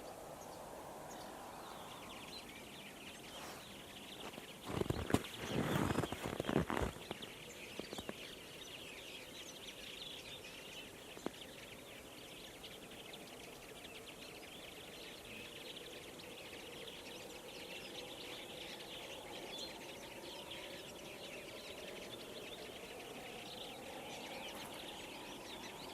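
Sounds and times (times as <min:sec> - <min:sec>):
faint low drone rising: 0:00.0 - 0:04.0
flock of finches twittering: 0:01.1 - 0:25.9.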